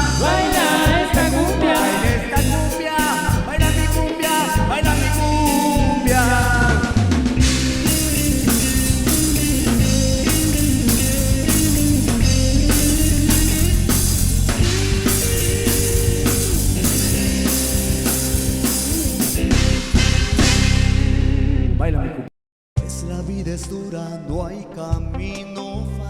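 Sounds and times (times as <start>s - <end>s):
drum kit beat: 0.0s - 21.2s
instrumental melody line: 0.0s - 21.8s.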